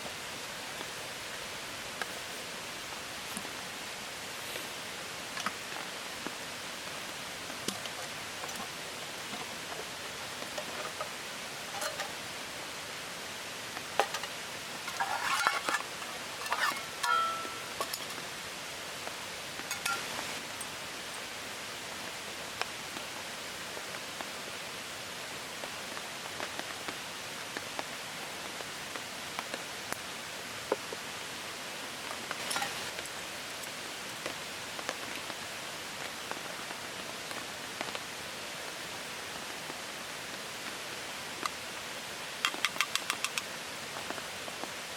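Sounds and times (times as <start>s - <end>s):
steady hiss: 0.0s - 44.9s
raindrops ticking: 42.4s - 44.2s.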